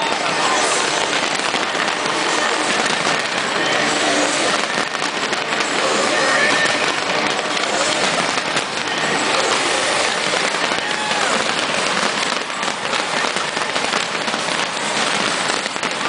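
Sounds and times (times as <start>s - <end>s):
fireworks bangs: 0.0s - 16.0s
fireworks crackling: 0.0s - 16.0s.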